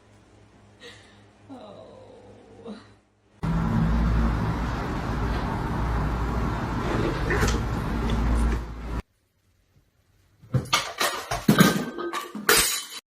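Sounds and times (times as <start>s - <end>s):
vehicle engine rumbling: 3.4s - 9.0s.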